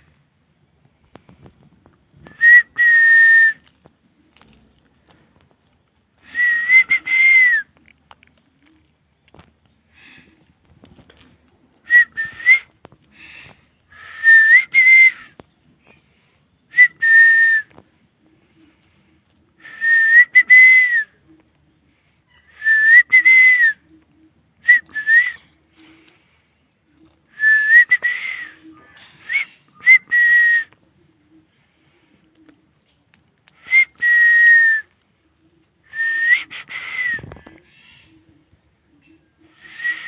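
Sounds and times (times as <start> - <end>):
parrot whistling calls: 39.5 - 40.0.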